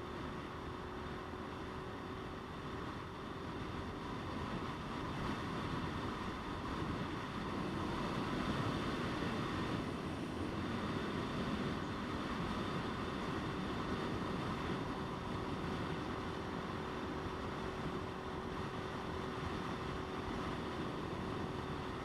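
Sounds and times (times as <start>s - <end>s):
road noise: 0.0s - 22.0s.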